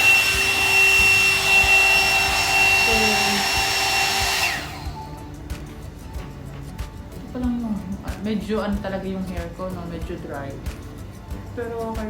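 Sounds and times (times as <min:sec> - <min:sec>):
hair dryer blowing: 0:00.0 - 0:05.2.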